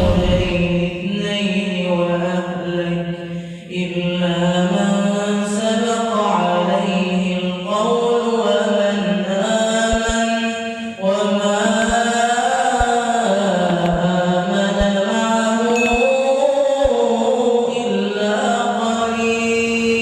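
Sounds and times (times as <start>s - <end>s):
soft low beats: 0.0s - 0.9s
low drone: 0.0s - 1.1s
wordless chanted vocals: 0.0s - 20.0s.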